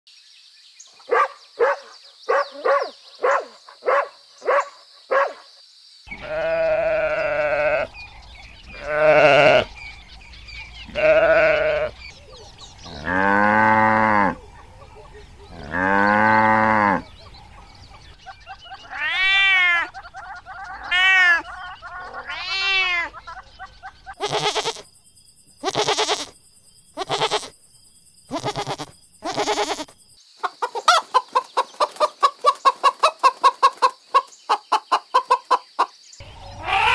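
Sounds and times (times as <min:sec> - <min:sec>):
dog barking: 0:01.1 - 0:05.5
goats bleating: 0:06.2 - 0:07.9, 0:08.7 - 0:09.7, 0:10.9 - 0:12.0, 0:24.2 - 0:24.8, 0:25.6 - 0:26.3, 0:27.0 - 0:27.5, 0:28.3 - 0:29.9
cows mooing: 0:12.9 - 0:14.4, 0:15.5 - 0:17.1.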